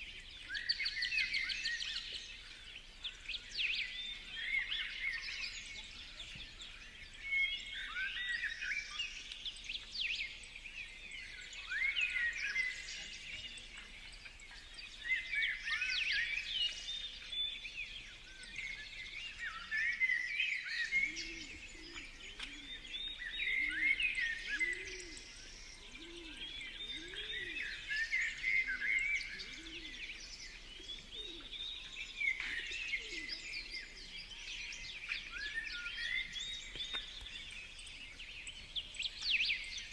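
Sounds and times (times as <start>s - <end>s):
birds chirping: 20.8s - 39.9s
low arching bird notes: 20.8s - 39.9s.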